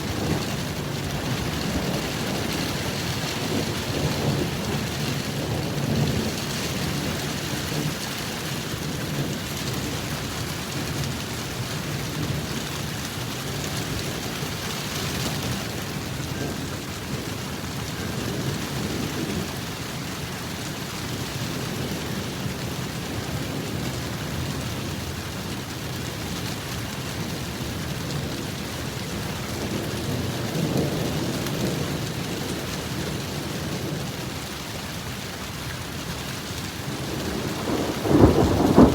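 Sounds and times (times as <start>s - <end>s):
thunder rumbling: 0.0s - 19.9s, 35.9s - 38.9s
heavy rain: 0.0s - 38.9s.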